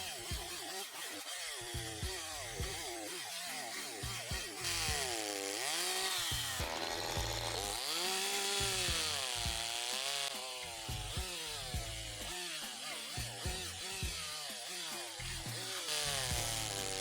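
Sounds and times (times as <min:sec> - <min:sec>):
chainsaw engine revving: 0:00.0 - 0:17.0
background music: 0:15.2 - 0:17.0.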